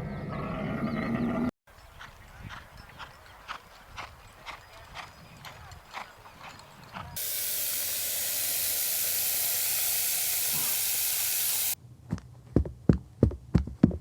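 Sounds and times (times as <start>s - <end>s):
loud steady hiss: 7.2s - 11.8s.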